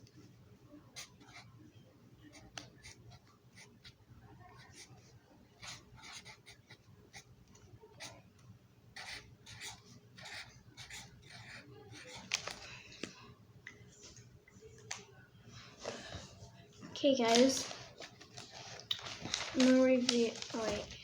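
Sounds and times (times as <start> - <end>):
marker writing strokes: 5.6 - 7.3, 9.0 - 12.4.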